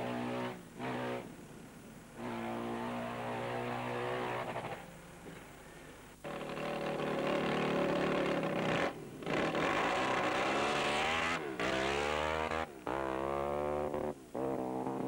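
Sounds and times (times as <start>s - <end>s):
motorbike engine accelerating: 6.2s - 15.0s.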